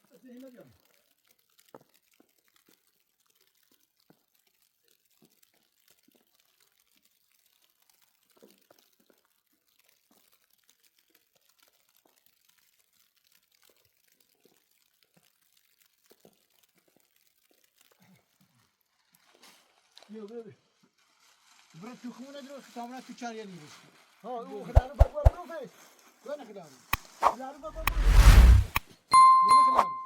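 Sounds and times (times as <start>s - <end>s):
soft clicks and crackles: 0.0s - 18.0s.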